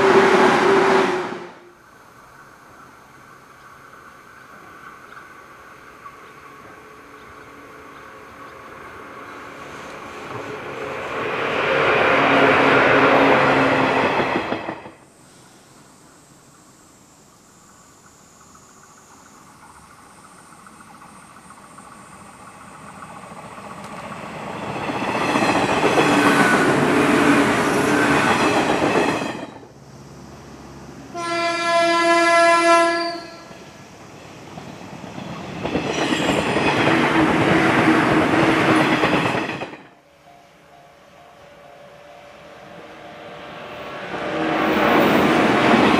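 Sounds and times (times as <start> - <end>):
train horn blast: 0.0 - 1.8, 31.1 - 33.6, 40.1 - 44.8
wheel-on-rail noise: 0.0 - 15.5, 18.1 - 31.1, 33.3 - 45.9
train passing close by: 0.0 - 16.6, 17.7 - 45.9.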